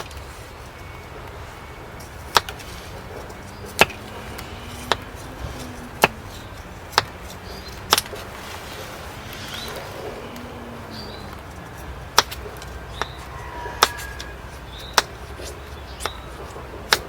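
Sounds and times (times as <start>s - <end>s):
axe chopping firewood: 2.3s - 2.8s, 3.6s - 6.3s, 6.9s - 8.3s, 12.2s - 13.1s.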